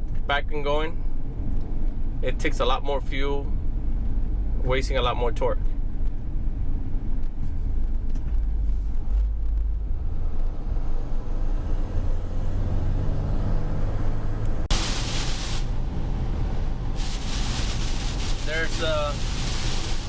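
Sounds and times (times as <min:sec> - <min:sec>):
road noise: 0:00.0 - 0:20.0
vehicle engine drone: 0:00.9 - 0:20.0
loud hiss: 0:14.7 - 0:15.8, 0:16.9 - 0:20.0.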